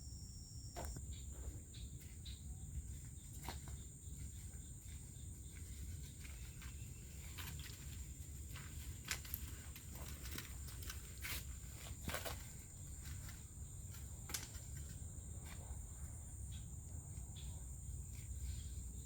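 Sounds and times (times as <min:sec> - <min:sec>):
insects droning: 0:00.0 - 0:19.0
footsteps crunching on trail: 0:03.1 - 0:14.1.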